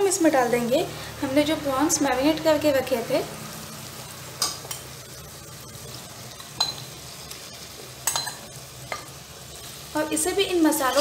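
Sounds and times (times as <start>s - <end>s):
masala sizzling in oil: 0.0s - 11.0s
metal spatula clinking on pot: 4.4s - 4.9s, 6.4s - 6.9s, 8.0s - 9.1s, 10.8s - 11.0s.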